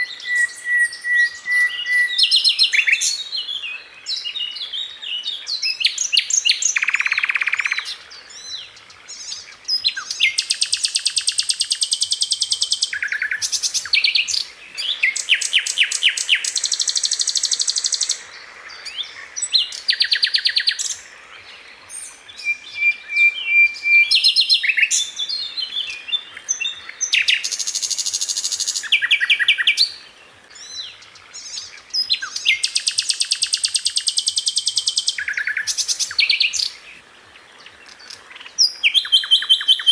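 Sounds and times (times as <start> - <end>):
bird singing rattling trills: 9.1 - 18.2, 30.6 - 36.8.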